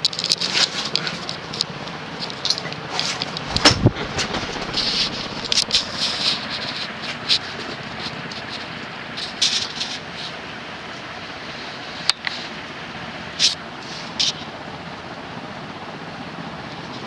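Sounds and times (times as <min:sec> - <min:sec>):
light rattles and clicks: 0:00.0 - 0:10.4
ceiling fan air rushing: 0:00.0 - 0:16.1
sharp knock: 0:03.5 - 0:06.0.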